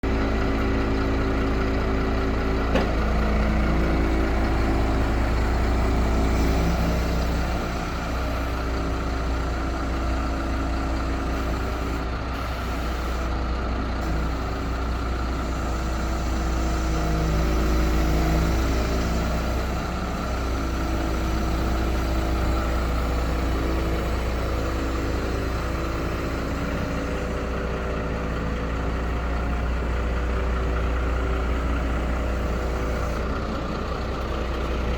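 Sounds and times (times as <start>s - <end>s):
truck diesel engine running: 0.0s - 34.9s.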